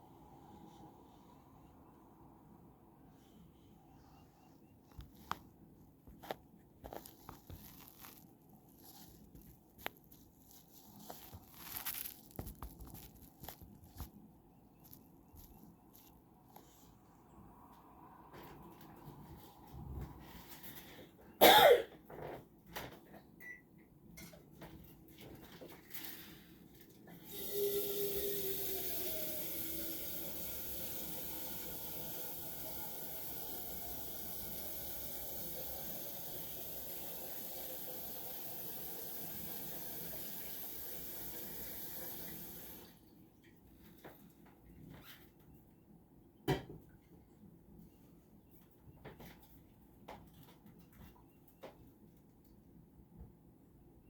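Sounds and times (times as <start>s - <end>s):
water running from a tap: 27.2s - 42.9s.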